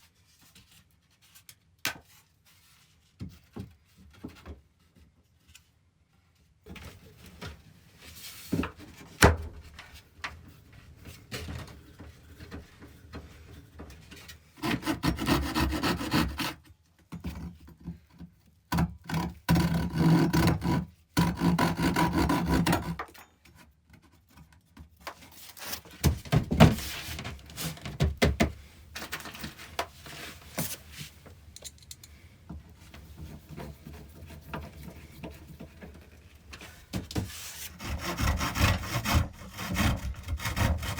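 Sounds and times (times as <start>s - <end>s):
rasping strokes through wood: 14.6s - 16.6s, 19.5s - 23.0s, 37.6s - 40.9s.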